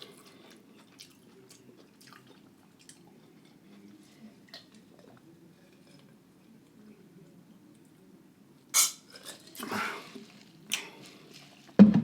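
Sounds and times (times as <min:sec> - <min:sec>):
wet chewing mouth sounds: 0:00.0 - 0:03.6.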